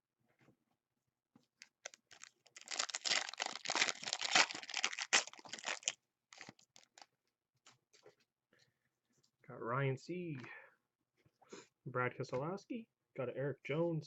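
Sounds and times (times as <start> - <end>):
card pack wrapper tearing and crinkling: 1.6 - 7.1.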